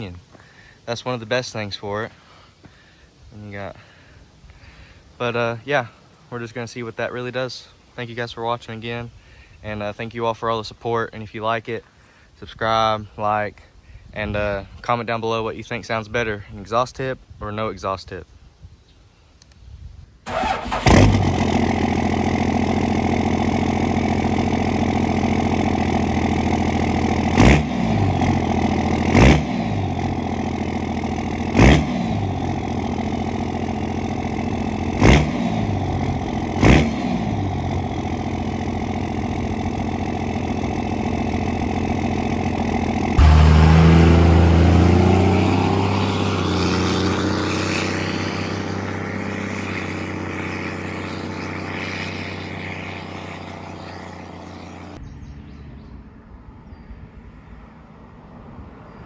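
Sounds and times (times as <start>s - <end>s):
diesel truck engine revving: 20.3s - 55.0s.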